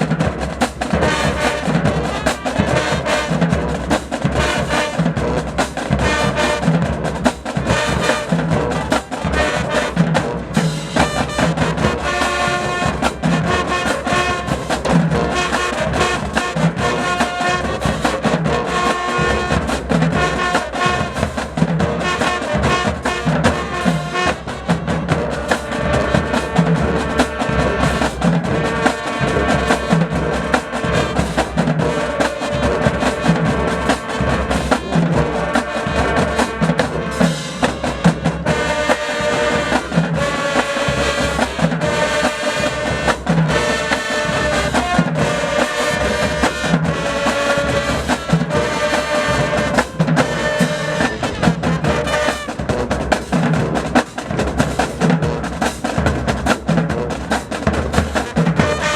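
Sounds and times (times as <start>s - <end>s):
drumline beat: 0.0s - 58.9s
brass section sustaining chords: 7.6s - 53.2s, 58.5s - 58.9s.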